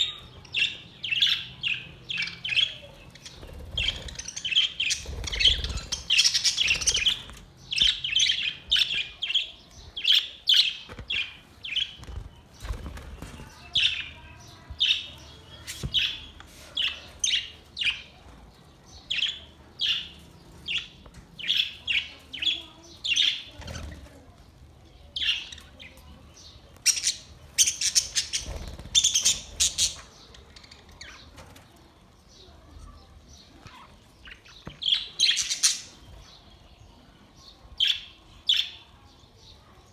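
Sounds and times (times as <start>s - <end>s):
budgerigars chirping: 0.0s - 12.1s, 26.8s - 31.3s, 33.6s - 36.1s.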